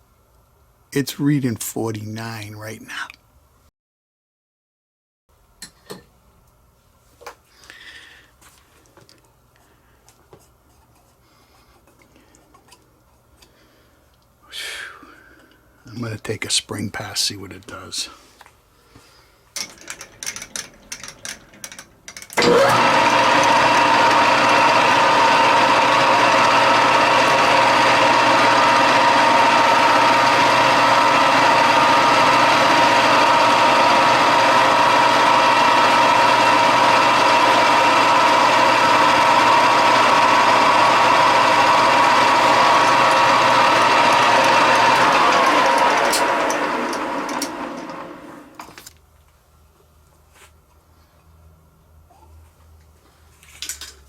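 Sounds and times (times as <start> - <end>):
machine tool whining: 22.4 - 48.7.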